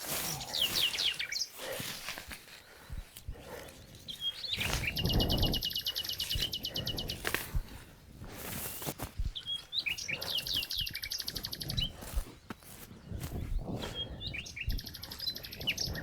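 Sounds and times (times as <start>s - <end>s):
songbirds chirping and trilling: 0.0s - 16.0s.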